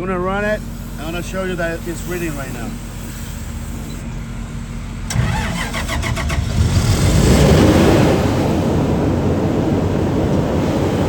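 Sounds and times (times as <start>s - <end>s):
generator starter cranking: 0.0s - 7.2s
generator engine running: 0.0s - 11.0s.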